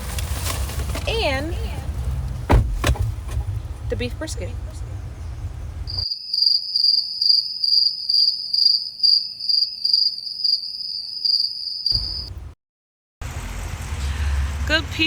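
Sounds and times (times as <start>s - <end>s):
cricket chirping: 5.9s - 12.3s.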